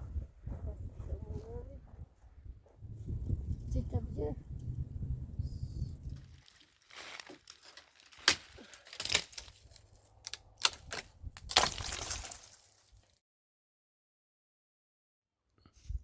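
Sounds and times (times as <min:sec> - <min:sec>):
rustling scrapes: 0:06.0 - 0:10.1
sharp cracking and crunching: 0:06.1 - 0:13.2.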